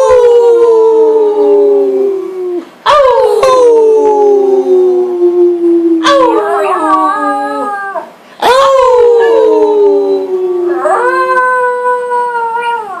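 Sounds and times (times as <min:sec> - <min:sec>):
people howling: 0:00.0 - 0:13.0
dog howling: 0:06.0 - 0:13.0.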